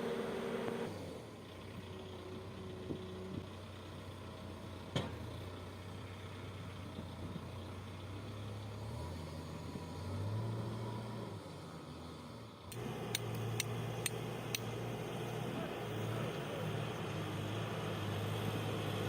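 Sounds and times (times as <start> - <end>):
machine engine running at low revs: 0.0 - 19.0.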